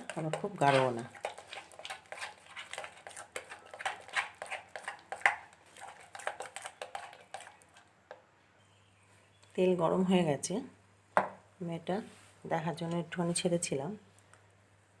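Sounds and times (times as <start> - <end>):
spoon mixing thick batter: 0.0 - 8.3.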